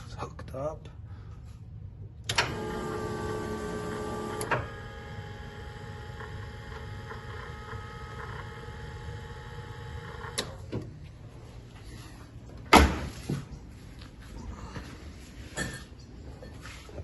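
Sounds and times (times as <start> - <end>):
electric pump humming: 2.3 - 10.8.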